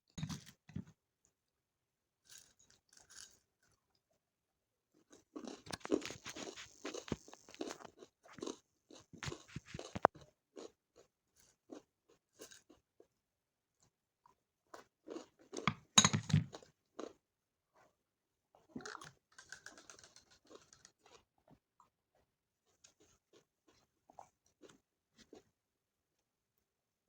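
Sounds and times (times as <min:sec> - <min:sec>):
person chewing crunchy food: 0:05.0 - 0:13.2, 0:13.8 - 0:17.2, 0:18.6 - 0:25.5.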